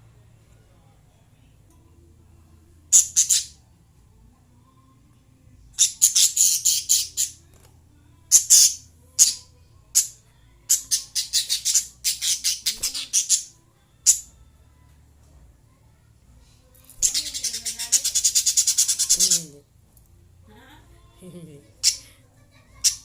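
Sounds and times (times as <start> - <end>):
lovebirds chirping: 2.9 - 3.6, 5.8 - 7.4, 8.3 - 13.5, 17.0 - 19.6, 21.8 - 22.2.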